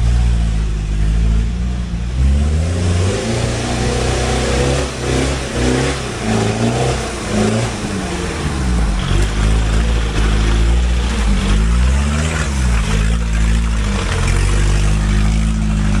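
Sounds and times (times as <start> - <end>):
off-road engine revving in mud: 0.0 - 16.0.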